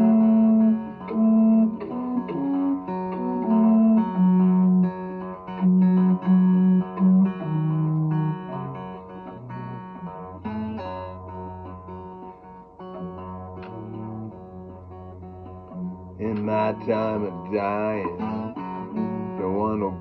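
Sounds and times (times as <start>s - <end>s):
long held low melody notes: 0.0s - 20.0s
slow blues guitar: 0.0s - 20.0s.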